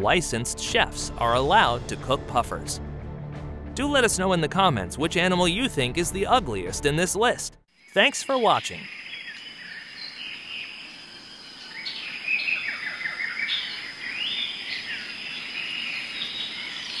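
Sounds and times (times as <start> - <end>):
birds chirping and whistling: 7.7 - 17.0.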